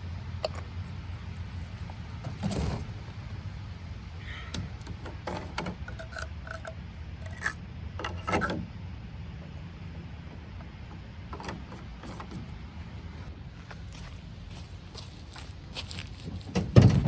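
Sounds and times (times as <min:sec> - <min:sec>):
steady low rumble: 0:00.0 - 0:17.0
camping gear scraping and knocking: 0:00.4 - 0:03.2.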